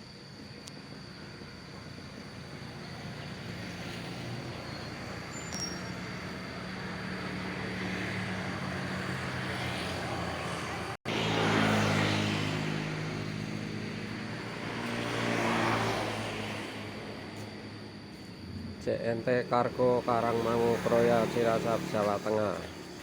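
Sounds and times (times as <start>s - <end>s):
vehicle engine running: 1.1s - 23.0s
vehicle passing: 6.0s - 23.0s.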